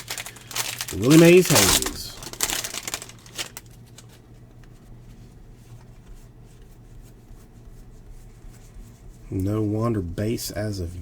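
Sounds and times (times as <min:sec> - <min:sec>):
cards rustling and clicking: 0:00.0 - 0:04.2
low steady hum: 0:00.0 - 0:11.0.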